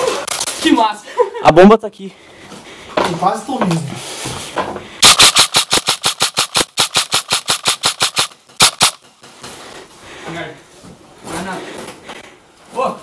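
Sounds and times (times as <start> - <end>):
airsoft gun firing: 5.0 - 9.0.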